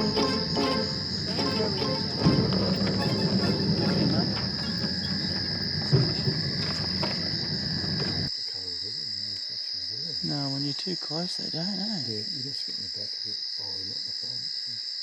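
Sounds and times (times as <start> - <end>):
low rumbling wash: 0.0 - 8.3
high-pitched insect chorus: 0.0 - 15.0.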